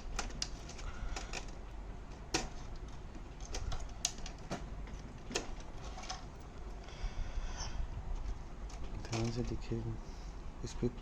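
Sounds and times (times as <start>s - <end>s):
hands clicking and tapping in printer: 0.0s - 5.6s.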